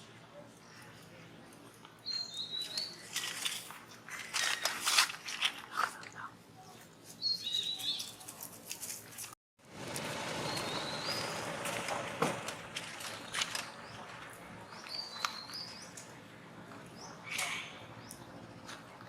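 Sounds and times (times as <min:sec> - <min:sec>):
bird chirping: 0:02.0 - 0:03.1, 0:06.6 - 0:08.3, 0:10.4 - 0:11.8, 0:12.9 - 0:19.0.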